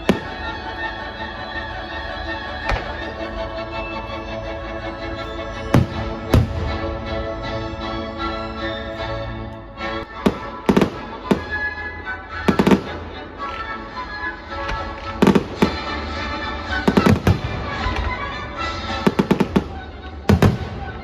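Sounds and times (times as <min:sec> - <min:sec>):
fireworks bangs: 0:00.0 - 0:00.9, 0:05.8 - 0:07.0, 0:10.2 - 0:11.8, 0:12.4 - 0:13.7, 0:14.6 - 0:21.0
music: 0:00.0 - 0:21.0.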